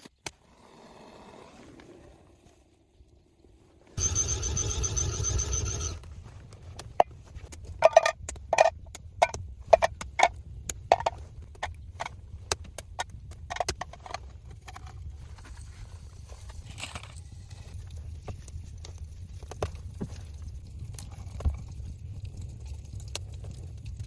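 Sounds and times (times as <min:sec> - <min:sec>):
high-pitched whirring: 0:04.0 - 0:06.0.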